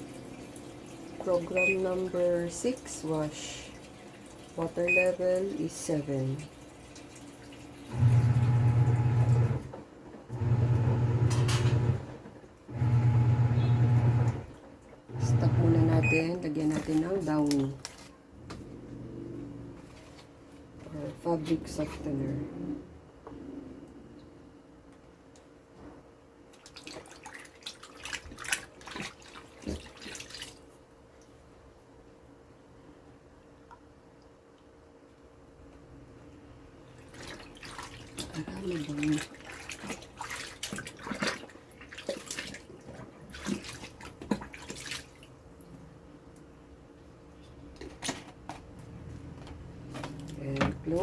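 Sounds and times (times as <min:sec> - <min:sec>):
washing machine agitating: 0:00.0 - 0:22.9, 0:26.5 - 0:31.6, 0:35.8 - 0:46.2, 0:47.4 - 0:51.0
liquid pouring and splashing: 0:26.6 - 0:30.8, 0:37.0 - 0:45.4.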